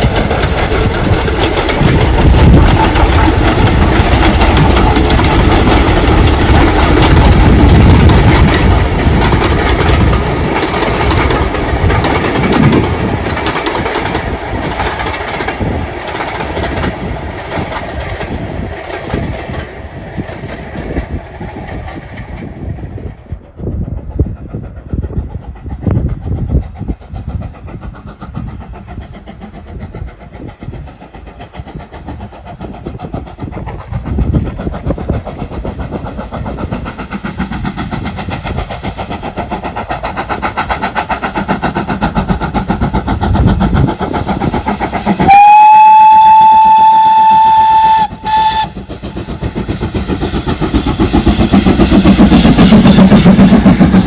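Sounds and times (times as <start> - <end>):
steam locomotive running: 0.0 - 54.0
steam whistle blasts: 45.2 - 48.7.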